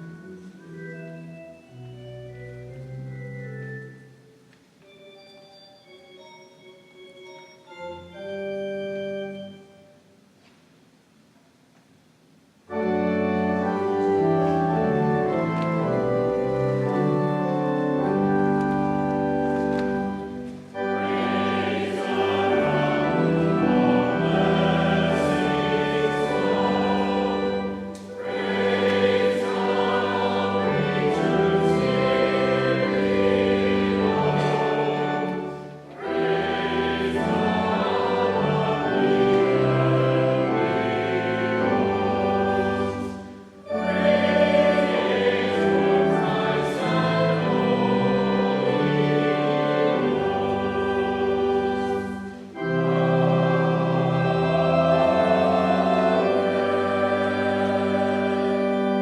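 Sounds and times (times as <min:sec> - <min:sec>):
organ chords: 0:00.0 - 0:10.2, 0:12.7 - 0:59.0
voices singing a hymn: 0:12.7 - 0:59.0.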